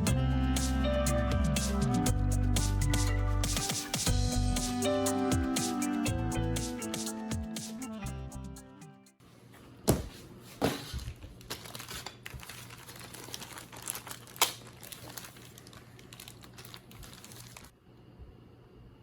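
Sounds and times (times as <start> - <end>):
plastic crinkling and rustling: 10.5 - 17.8.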